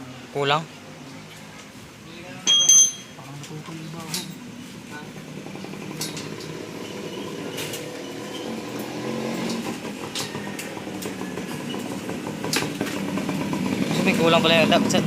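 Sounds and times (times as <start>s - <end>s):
motorcycle engine idling: 9.8s - 15.0s.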